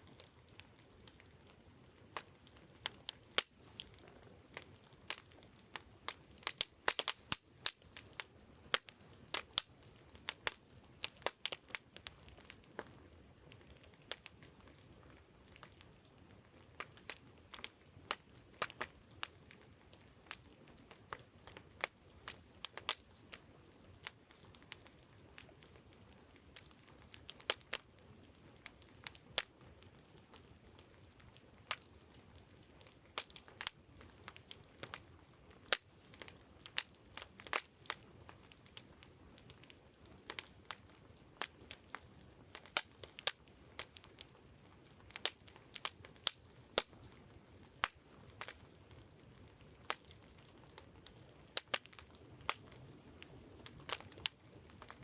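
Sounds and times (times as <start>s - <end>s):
campfire crackling: 0.0s - 55.0s
faint steady hiss: 0.0s - 55.0s.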